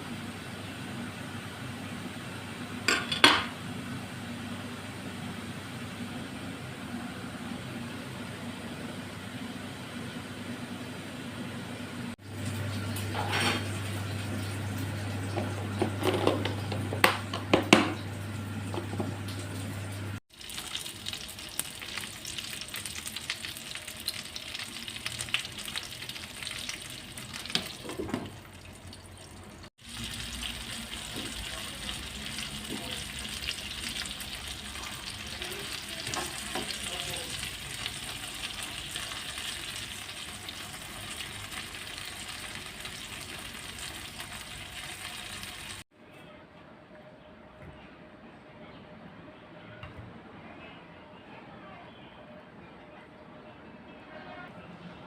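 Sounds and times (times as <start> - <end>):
food sizzling in a pan: 12.3 - 45.9.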